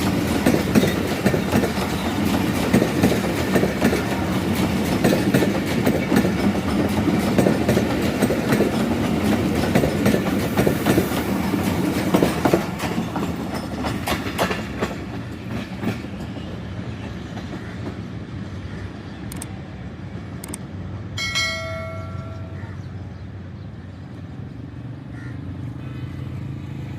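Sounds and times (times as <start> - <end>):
train wheels clattering over rails: 0.0 - 19.4.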